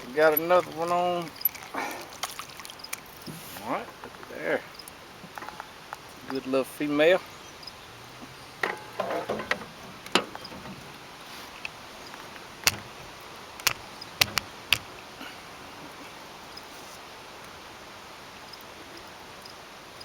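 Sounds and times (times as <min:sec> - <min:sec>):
outdoor background hiss: 0:00.0 - 0:20.0
knocks and clicks of tackle: 0:08.6 - 0:15.0.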